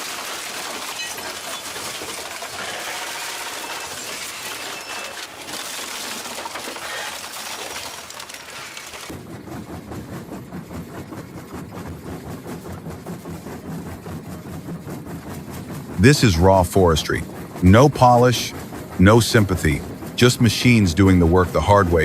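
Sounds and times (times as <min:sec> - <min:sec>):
machinery grinding and crashing: 0:00.0 - 0:09.2
machine rhythmic pounding: 0:00.0 - 0:22.0.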